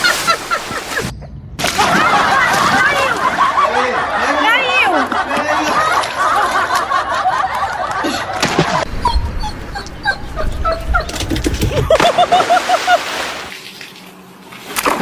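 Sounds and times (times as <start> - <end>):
dogs whining and yipping: 8.9 - 12.0.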